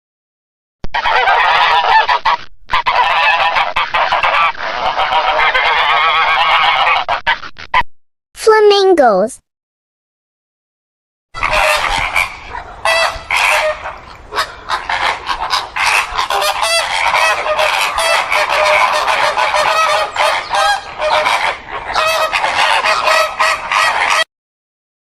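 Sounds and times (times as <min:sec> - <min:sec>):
flamingos calling in chorus: 0:00.9 - 0:07.3, 0:11.4 - 0:24.3.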